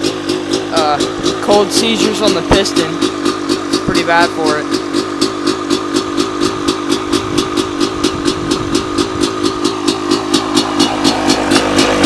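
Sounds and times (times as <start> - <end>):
two-stroke dirt bike idling: 0.0 - 12.0.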